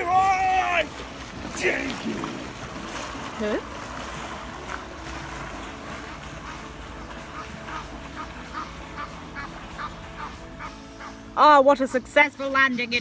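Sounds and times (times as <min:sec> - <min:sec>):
duck quacking: 0:06.1 - 0:11.2.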